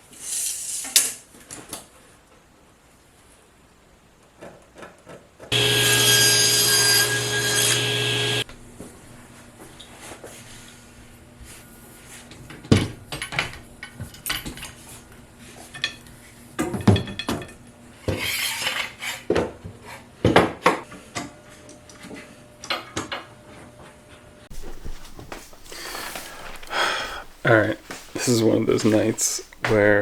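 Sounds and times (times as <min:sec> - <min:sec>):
hissing or rustling: 0:24.5 - 0:30.0.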